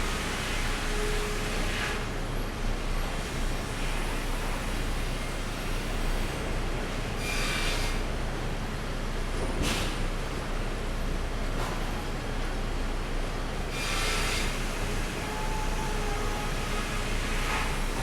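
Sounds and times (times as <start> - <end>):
sawmill machinery running: 10.6 - 18.0.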